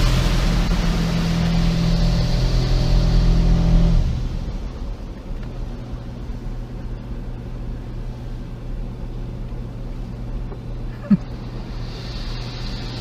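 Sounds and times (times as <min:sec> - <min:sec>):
car wash machinery rumbling: 0:00.0 - 0:13.0
faint hiss: 0:10.9 - 0:13.0.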